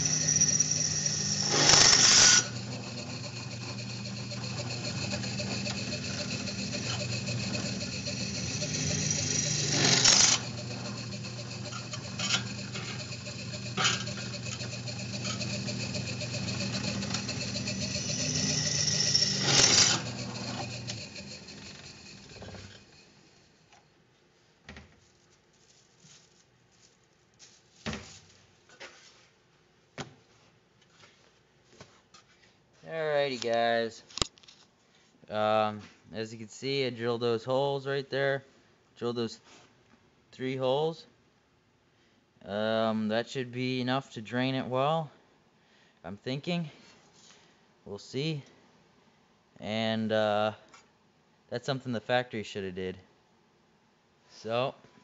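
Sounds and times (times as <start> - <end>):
electric drill drilling metal: 0.0 - 22.9.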